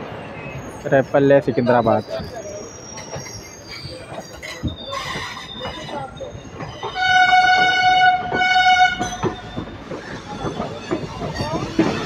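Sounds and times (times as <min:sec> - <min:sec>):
train coaches rumbling past: 0:00.0 - 0:12.0
train horn: 0:07.0 - 0:09.3.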